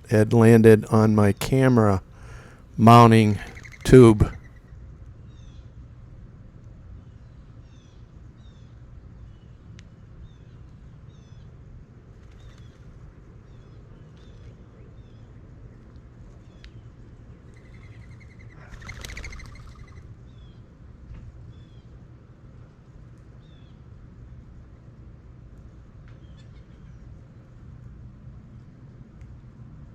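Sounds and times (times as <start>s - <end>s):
steady low rumble: 0.0s - 4.3s
loud bird call: 1.0s - 4.6s, 17.5s - 20.1s
small birds chirping: 2.1s - 4.6s, 16.3s - 20.7s.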